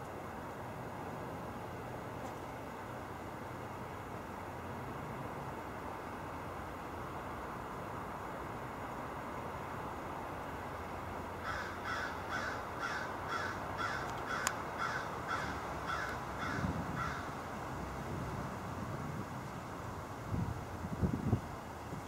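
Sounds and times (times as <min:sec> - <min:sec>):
steady background hiss: 0:00.0 - 0:22.0
bird calling: 0:11.4 - 0:17.3.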